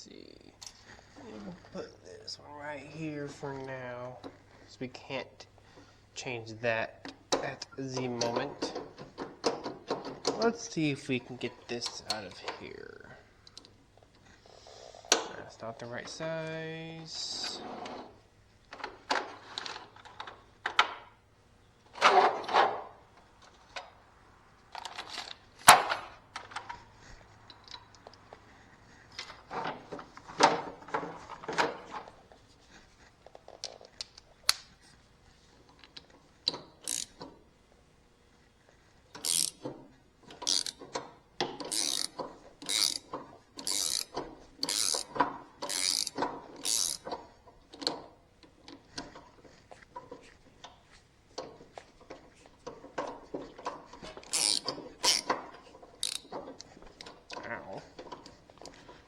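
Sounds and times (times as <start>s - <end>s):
hand tools clinking on metal: 7.1s - 13.7s, 39.2s - 50.8s, 51.4s - 59.0s
ratchet wrench clicking: 36.5s - 37.2s, 39.1s - 39.7s, 40.4s - 41.0s, 41.6s - 47.2s, 54.2s - 56.8s.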